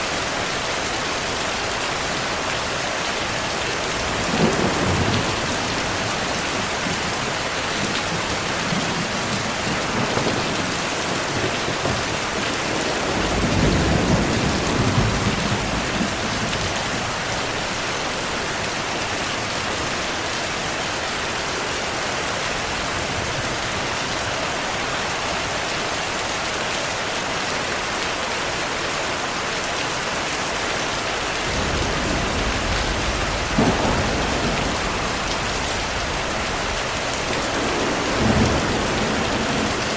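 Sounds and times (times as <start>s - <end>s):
heavy rain falling: 0.0s - 39.9s
thunder rumbling: 3.8s - 18.0s, 31.4s - 39.9s
sharp thunder crack: 31.6s - 39.9s.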